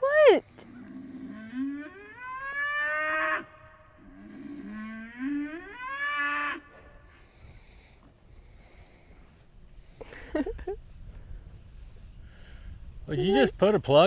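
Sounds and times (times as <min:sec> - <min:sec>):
cattle mooing: 0:00.7 - 0:06.8.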